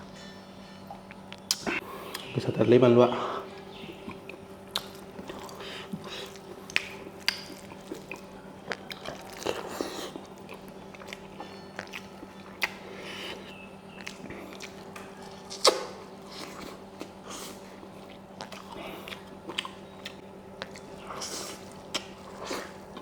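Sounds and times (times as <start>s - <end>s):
faint steady hum: 0.0s - 23.0s
wet mouth clicks and smacks: 1.4s - 2.3s, 14.0s - 16.0s
chewing food: 3.3s - 23.0s.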